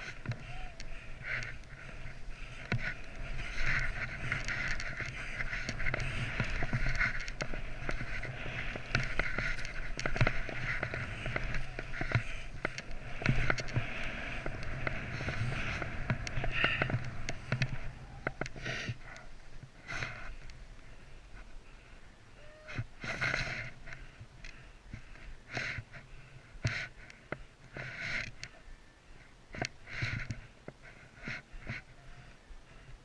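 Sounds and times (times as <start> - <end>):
wind on microphone: 0.0 - 20.5.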